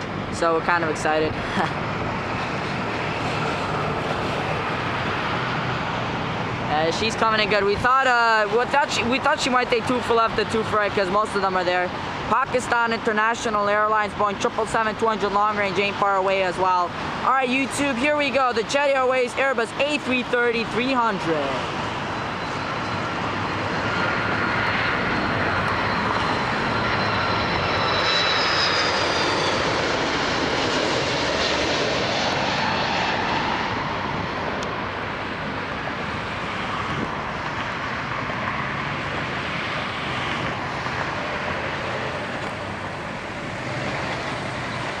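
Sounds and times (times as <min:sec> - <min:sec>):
airliner jet engines roaring: 0:00.0 - 0:45.0.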